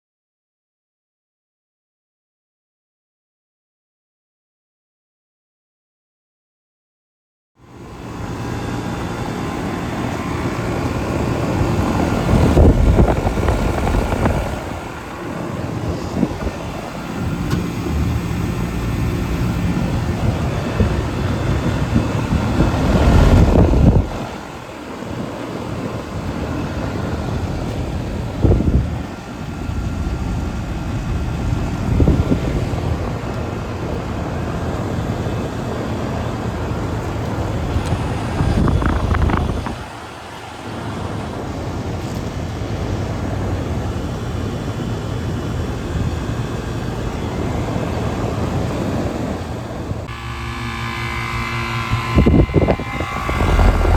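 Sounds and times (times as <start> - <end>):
low rumbling noise: 7.7 - 24.6, 36.0 - 40.0, 45.3 - 53.9.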